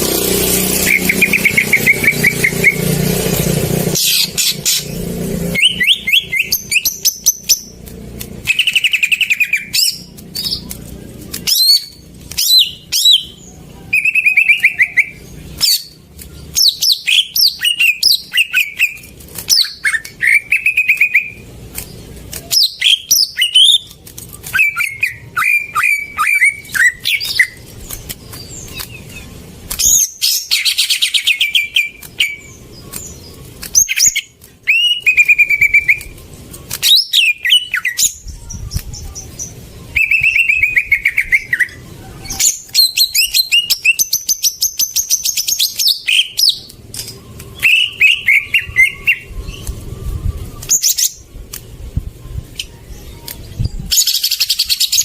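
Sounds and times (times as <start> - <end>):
bird singing whistled phrases: 0.8 - 3.0, 4.0 - 7.7, 11.3 - 21.4, 22.5 - 27.6, 28.4 - 36.2, 36.8 - 51.2.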